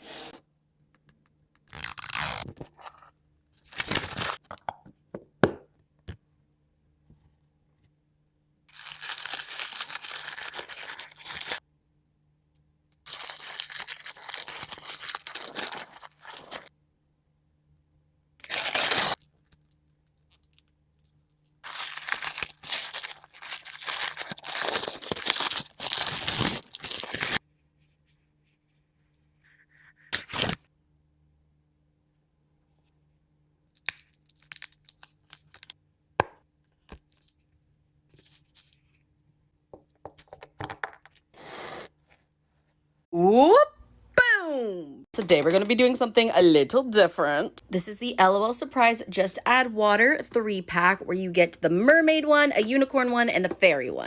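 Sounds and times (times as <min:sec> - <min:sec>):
packaging being torn open: 0:01.7 - 0:02.6, 0:03.6 - 0:04.4, 0:08.7 - 0:11.6, 0:13.1 - 0:16.7, 0:18.4 - 0:19.2, 0:21.6 - 0:27.4.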